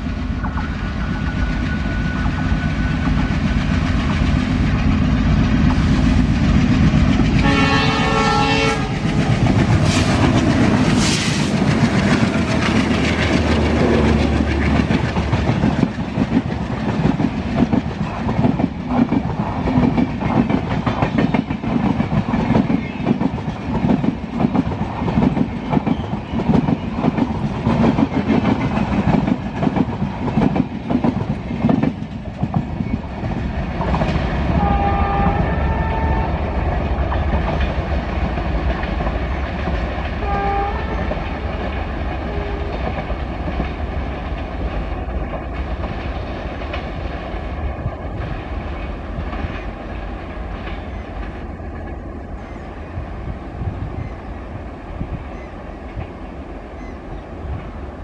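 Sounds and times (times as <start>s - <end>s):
diesel locomotive engines: 0.0s - 58.0s
train horn blast: 7.4s - 10.3s, 34.5s - 36.5s, 40.2s - 43.0s.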